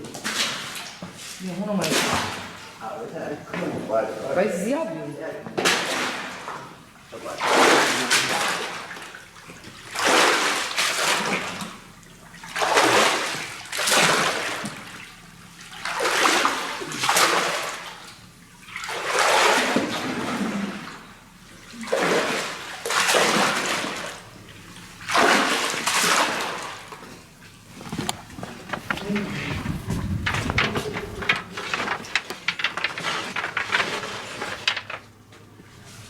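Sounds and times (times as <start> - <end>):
water pouring and splashing: 5.7 - 27.2.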